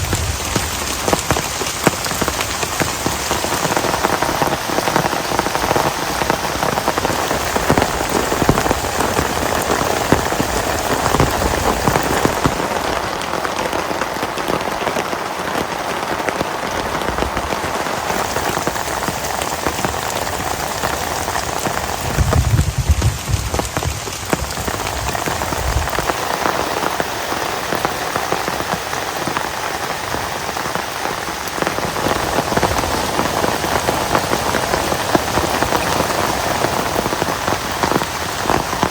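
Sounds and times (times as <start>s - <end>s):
heavy rain falling: 0.0s - 38.9s
low rumble: 21.8s - 26.0s.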